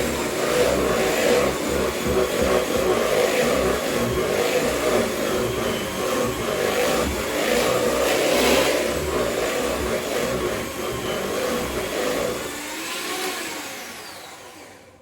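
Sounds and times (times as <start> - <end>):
electric mixer beating batter: 0.0 - 15.0.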